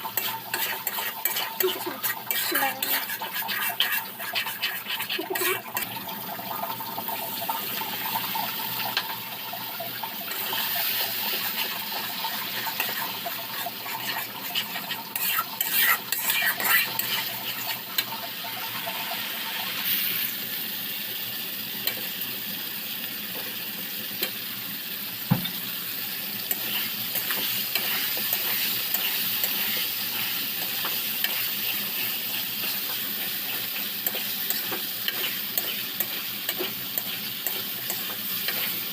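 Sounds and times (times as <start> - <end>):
spatula scraping and clinking: 0.0 - 5.9, 12.3 - 18.1, 26.5 - 38.8
food sizzling in a pan: 0.0 - 38.9
sharp knock: 25.3 - 25.6.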